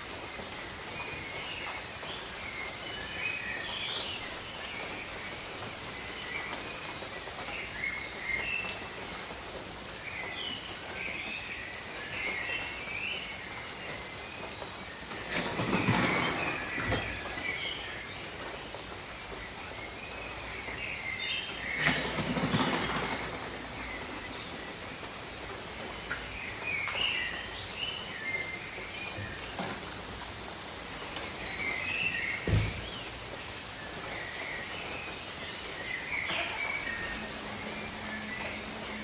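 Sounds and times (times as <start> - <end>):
gentle rain: 0.0 - 39.0
birds chirping: 11.4 - 39.0.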